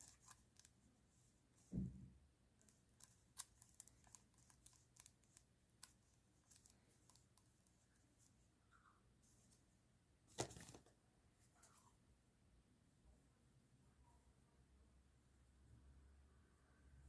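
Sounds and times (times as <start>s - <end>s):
loud thump: 1.7s - 2.1s.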